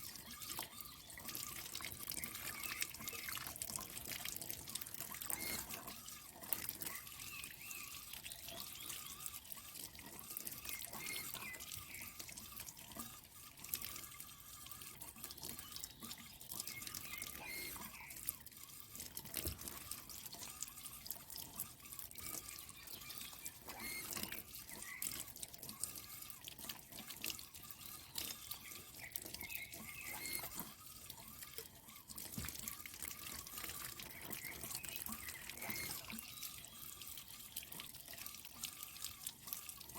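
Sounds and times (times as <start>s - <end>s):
small splashes and clicks: 0.0s - 39.9s
water running and dripping: 0.0s - 39.9s.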